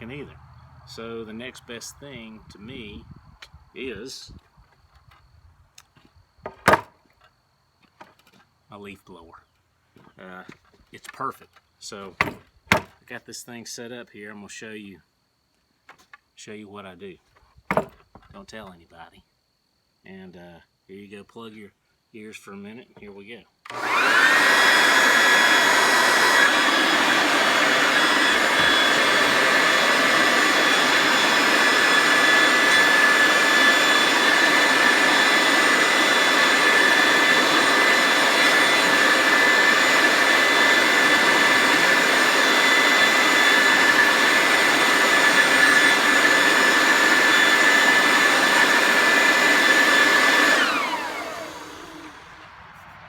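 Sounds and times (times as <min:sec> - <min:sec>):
leaf blower whining: 0:00.0 - 0:04.3, 0:23.7 - 0:52.9.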